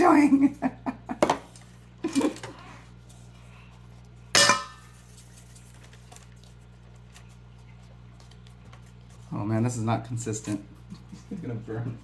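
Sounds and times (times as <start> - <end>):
low room hum: 0.0 - 12.0
crockery and utensils clinking: 4.4 - 4.9.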